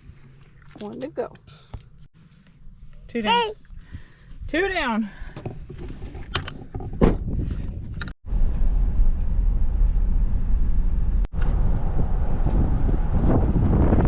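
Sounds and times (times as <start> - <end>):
road and wind noise: 0.0 - 14.0
car driving rumble: 7.8 - 14.0.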